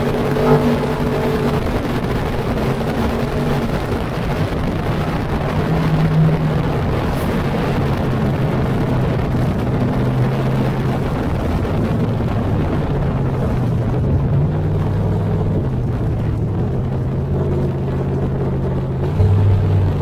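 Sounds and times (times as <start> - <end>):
race car engines droning: 0.0 - 20.0.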